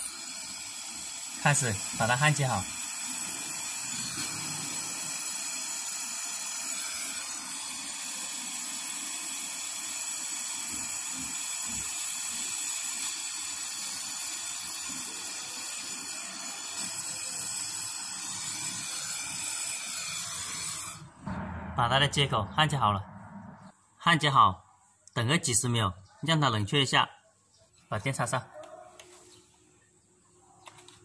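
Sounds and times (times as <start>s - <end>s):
torch flame hissing: 0.0s - 21.4s.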